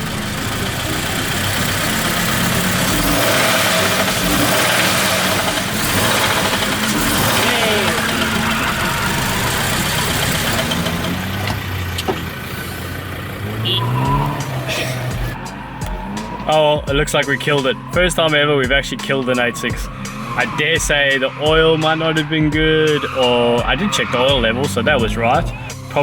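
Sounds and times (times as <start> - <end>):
car engine running: 0.0 - 26.0
background voices: 6.6 - 13.4.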